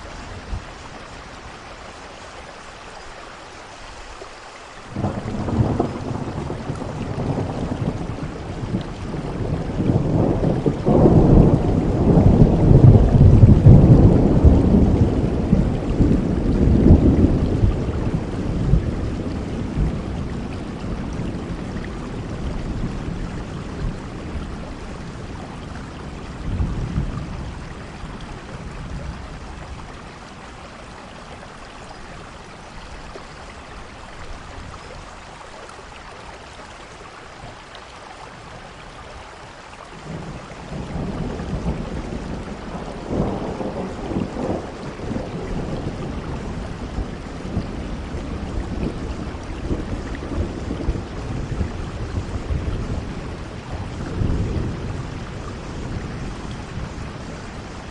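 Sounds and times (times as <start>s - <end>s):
steady rain: 0.0s - 57.9s
rolling thunder: 4.9s - 30.9s, 40.0s - 57.9s.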